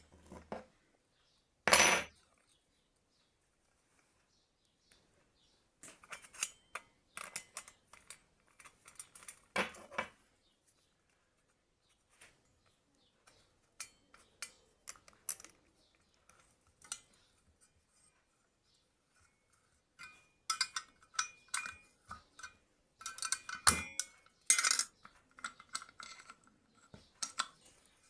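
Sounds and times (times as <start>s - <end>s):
small metal parts clinking: 20.0s - 26.5s.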